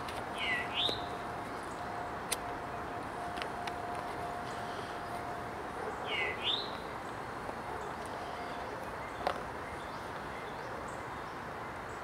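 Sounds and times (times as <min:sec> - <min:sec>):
bird call: 0:06.0 - 0:06.8.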